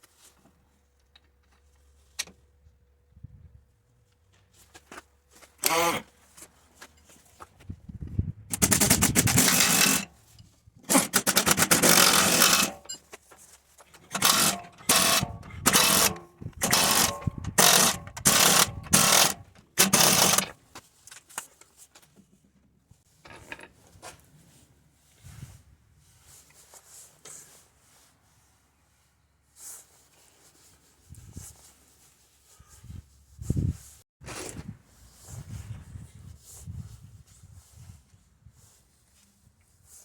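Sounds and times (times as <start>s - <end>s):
impact wrench hammering: 8.5s - 10.1s, 10.9s - 12.9s, 14.1s - 20.5s.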